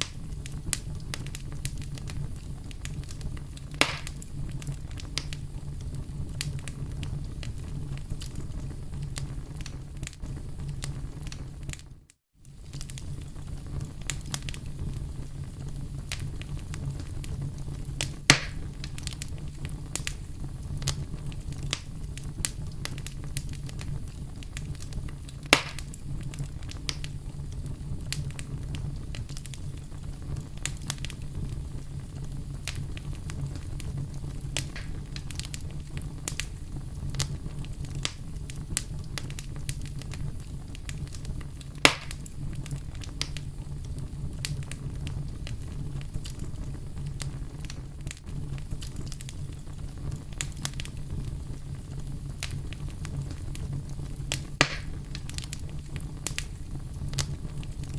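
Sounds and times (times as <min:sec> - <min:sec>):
campfire crackling: 0:00.0 - 0:57.9
loud fire pops: 0:00.0 - 0:57.9.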